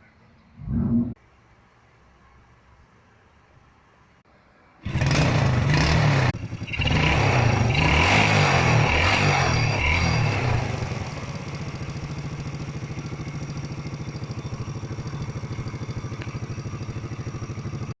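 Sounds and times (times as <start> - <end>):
motorcycle engine idling: 4.8 - 18.0.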